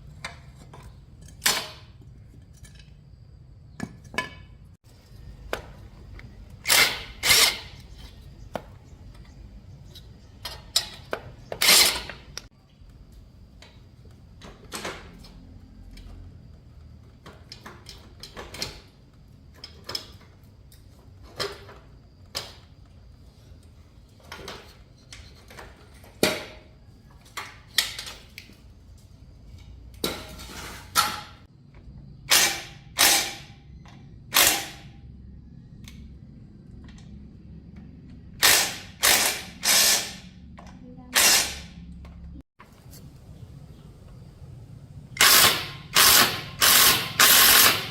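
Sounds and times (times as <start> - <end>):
ratchet wrench ratcheting: 45.2 - 47.9.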